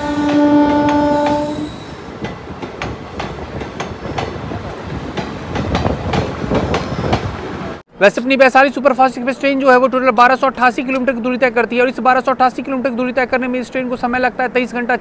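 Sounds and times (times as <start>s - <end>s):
train horn: 0.0s - 2.0s
train wheels clicking over rail joints: 0.2s - 7.6s.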